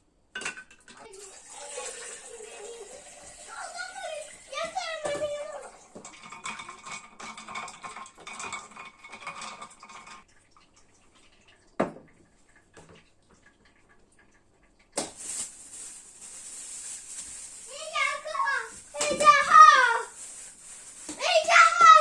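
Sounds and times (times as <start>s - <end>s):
pots and dishes clattering: 0.4s - 2.9s, 5.0s - 10.3s.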